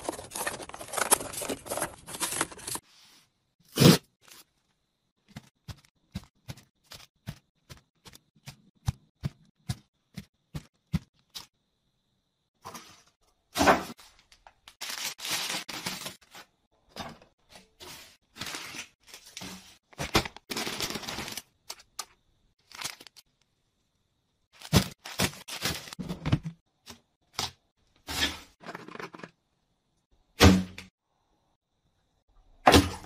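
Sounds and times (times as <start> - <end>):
packets rustling and tearing: 0.0 - 2.8, 14.0 - 16.4, 18.4 - 21.8, 22.6 - 23.2.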